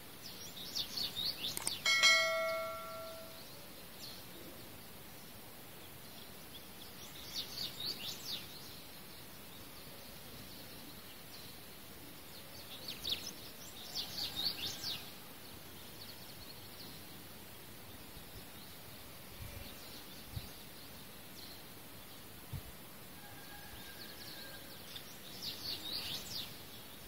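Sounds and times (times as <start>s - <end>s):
songbird chirping: 0.2s - 5.0s.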